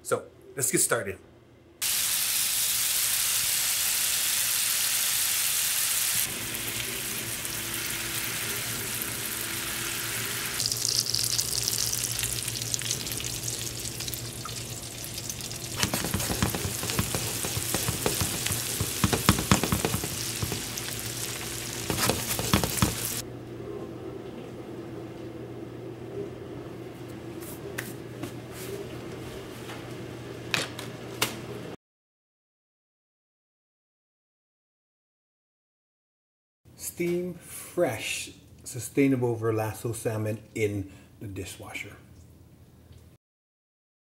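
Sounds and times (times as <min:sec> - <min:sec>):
food sizzling in a frying pan: 0:01.8 - 0:23.2
sharp popping fat: 0:15.7 - 0:23.2.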